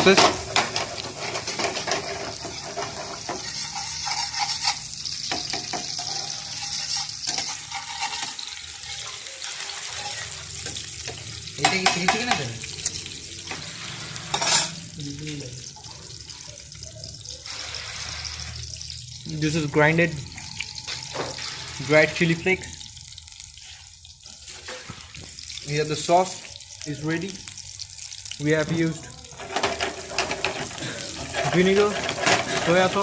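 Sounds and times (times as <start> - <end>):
utensil scraping a pan: 0.0 - 12.5, 13.4 - 14.8, 17.4 - 18.8, 20.9 - 22.3, 29.4 - 33.0
garlic sizzling in hot oil: 0.0 - 33.0.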